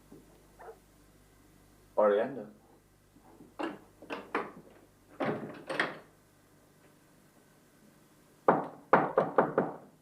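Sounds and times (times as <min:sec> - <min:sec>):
wooden door thuds and clatters: 0:05.2 - 0:06.0.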